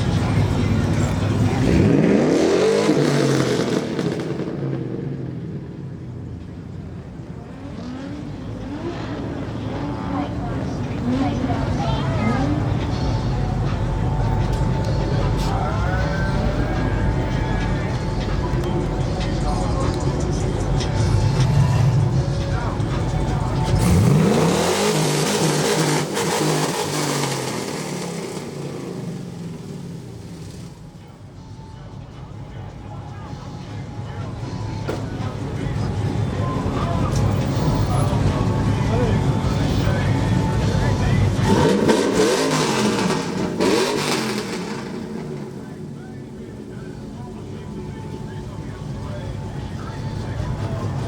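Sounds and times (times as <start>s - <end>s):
car engine revving: 0.0s - 31.2s, 34.6s - 51.0s
exhaust and tyres hissing: 0.0s - 51.0s
engine low steady rumble: 4.4s - 24.3s, 27.9s - 41.9s, 44.4s - 51.0s.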